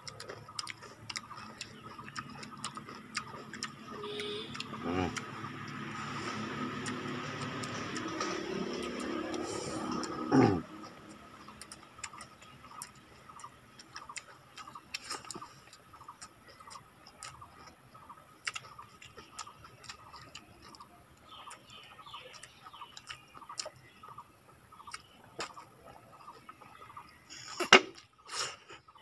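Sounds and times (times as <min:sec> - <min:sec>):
people chewing and lip smacking: 0:00.0 - 0:29.0.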